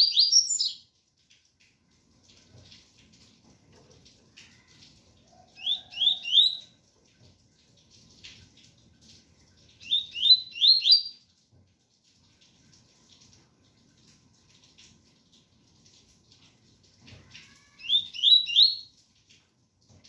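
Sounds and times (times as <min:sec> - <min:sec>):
faint rain: 0:00.0 - 0:20.0.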